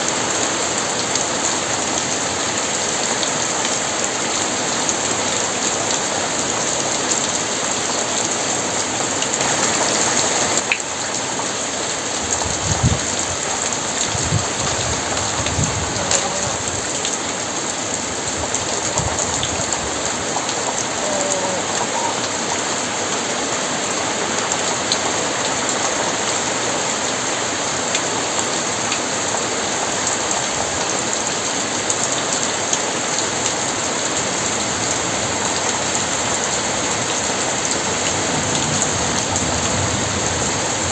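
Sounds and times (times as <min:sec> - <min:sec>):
heavy rain falling: 0:00.0 - 0:40.9
thunder rumbling: 0:12.4 - 0:17.0.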